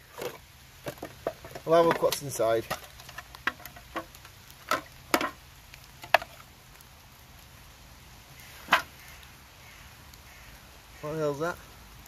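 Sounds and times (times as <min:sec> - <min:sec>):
metal knocks and clicks of tin box: 0:04.7 - 0:05.4.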